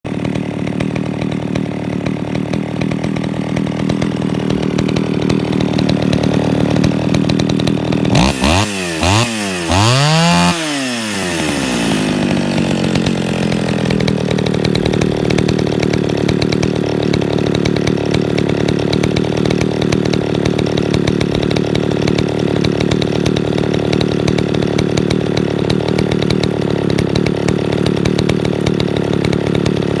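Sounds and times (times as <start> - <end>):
chainsaw idling and revving: 0.0 - 30.0.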